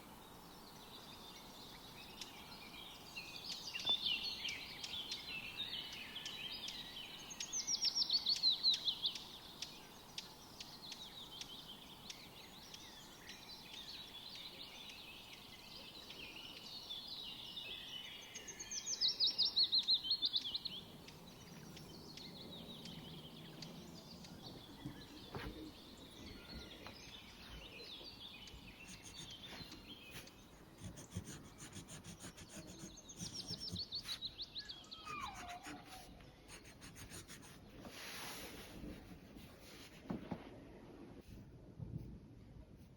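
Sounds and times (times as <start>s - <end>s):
songbirds singing and chirping: 0.0s - 40.4s
loud fast bird trill: 31.6s - 36.1s.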